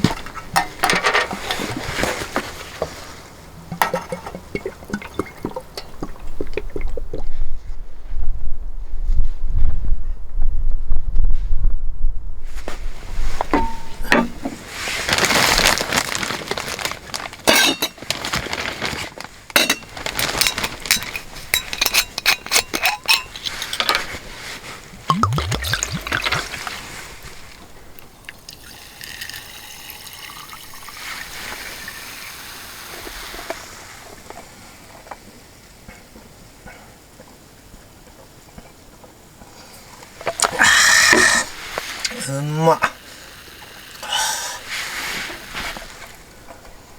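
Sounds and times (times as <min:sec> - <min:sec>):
liquid being poured: 0:03.9 - 0:07.4, 0:25.0 - 0:32.2
rising gurgle: 0:25.0 - 0:27.4.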